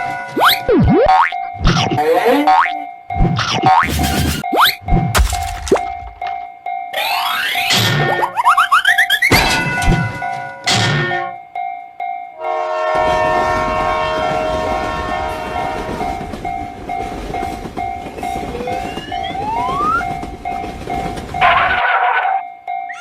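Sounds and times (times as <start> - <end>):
crossing alarm bell ringing: 0.0 - 23.0
train horn: 12.4 - 16.2
train rumble and clatter: 12.5 - 22.9.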